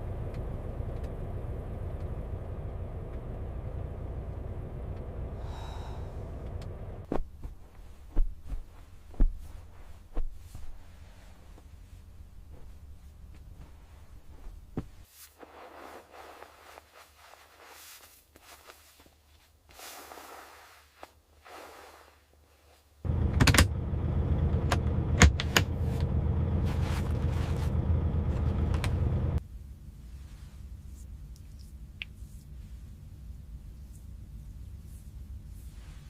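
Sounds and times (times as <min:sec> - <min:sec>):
steady low rumble: 0:00.0 - 0:15.0, 0:23.1 - 0:36.0
soft rustling and handling: 0:07.0 - 0:23.1, 0:26.6 - 0:28.9, 0:29.8 - 0:36.0.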